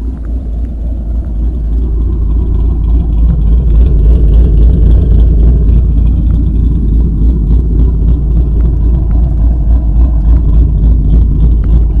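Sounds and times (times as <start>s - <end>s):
car engine exhaust rumble: 0.0s - 12.0s.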